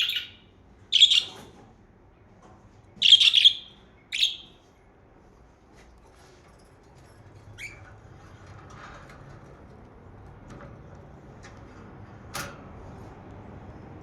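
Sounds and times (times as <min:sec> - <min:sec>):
budgerigar chirp: 0:00.0 - 0:01.4, 0:03.0 - 0:04.6.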